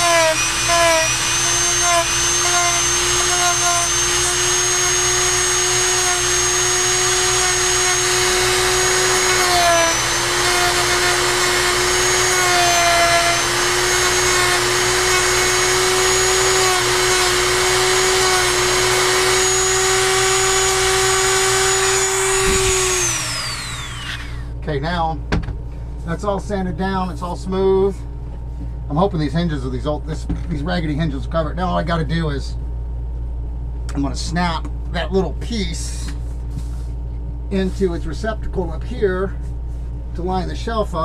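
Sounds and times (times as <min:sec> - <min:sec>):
high-speed rotary tool sanding wood: 0:00.0 - 0:24.5.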